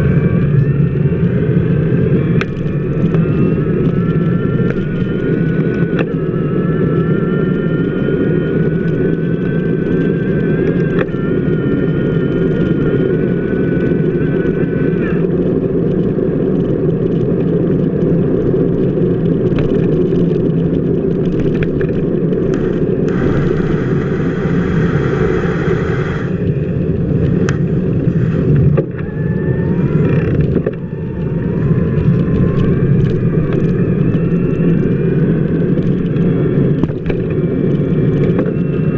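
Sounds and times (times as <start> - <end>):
faint whine: 0.0 - 38.9
bicycle wheel rolling on wet pavement: 15.3 - 38.6
hiss: 22.5 - 26.5.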